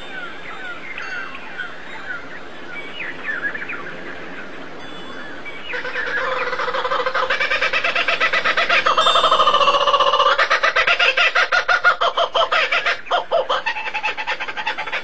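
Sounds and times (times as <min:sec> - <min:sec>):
birds chirping: 0:00.0 - 0:15.0
bird call with pulsing rattle: 0:05.5 - 0:15.0.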